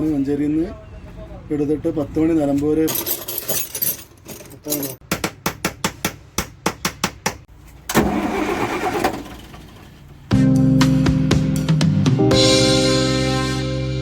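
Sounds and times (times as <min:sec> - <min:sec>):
diesel bus engine starting: 0:07.9 - 0:10.3.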